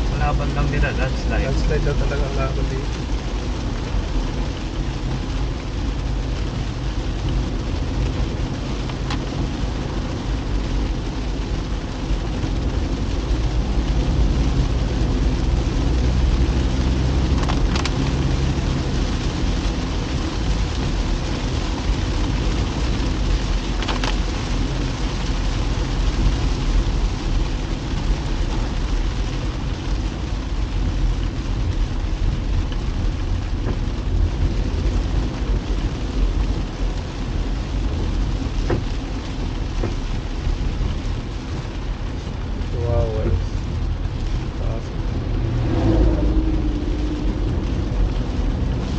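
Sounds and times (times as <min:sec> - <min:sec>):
car engine hum: 0:00.0 - 0:48.9
rain: 0:00.0 - 0:48.9
tyres on wet road: 0:00.0 - 0:48.9.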